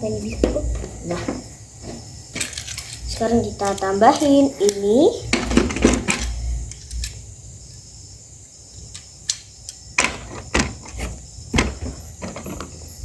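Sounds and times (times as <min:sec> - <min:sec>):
plastic track pieces clicking: 0:02.4 - 0:04.8.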